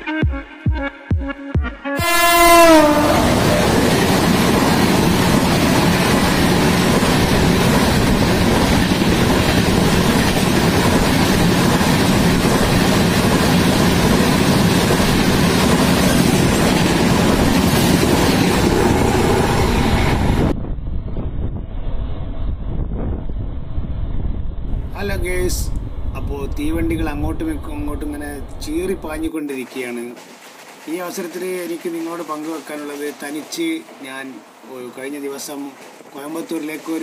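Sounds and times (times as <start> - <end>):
passing train horn: 1.8 - 4.5
train wheels rumbling on rails: 2.4 - 37.0.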